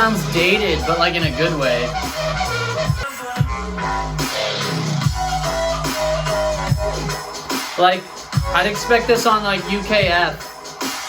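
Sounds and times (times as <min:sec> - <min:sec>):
dubstep dance track: 0:00.0 - 0:11.0.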